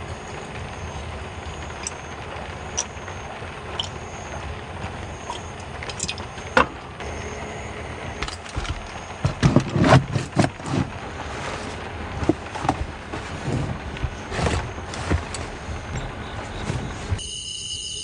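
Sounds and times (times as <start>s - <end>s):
steady rain falling: 0.0s - 7.0s
knocks and clatters of handling: 8.2s - 17.2s.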